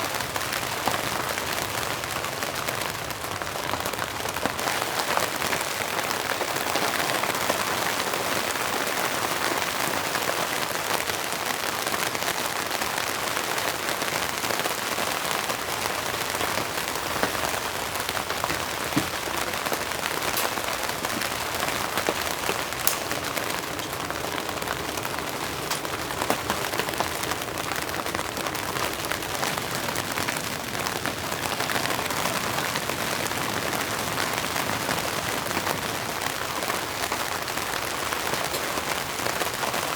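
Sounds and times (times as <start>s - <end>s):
steady rain hiss: 0.0s - 39.9s
loud single raindrops: 15.4s - 30.4s.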